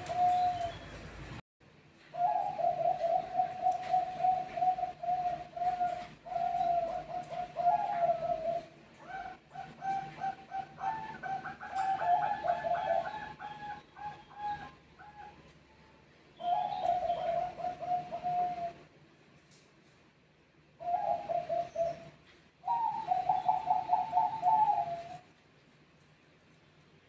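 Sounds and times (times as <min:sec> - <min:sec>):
doves cooing: 0:00.0 - 0:01.1, 0:02.1 - 0:15.5, 0:16.4 - 0:18.9, 0:20.8 - 0:25.3.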